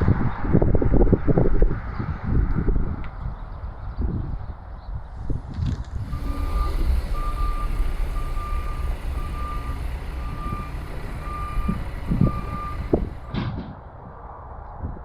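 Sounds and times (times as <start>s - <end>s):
low engine rumble: 5.0s - 13.4s
reversing alarm beeping: 6.0s - 13.4s.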